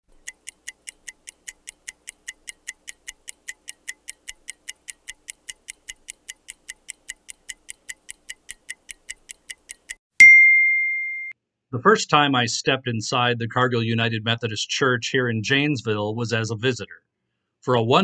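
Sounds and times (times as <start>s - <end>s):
microwave timer ticking: 0.1s - 10.0s.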